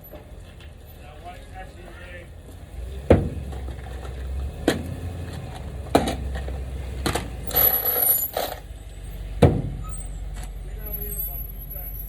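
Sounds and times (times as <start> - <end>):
scraping or rattling: 7.5 - 8.7.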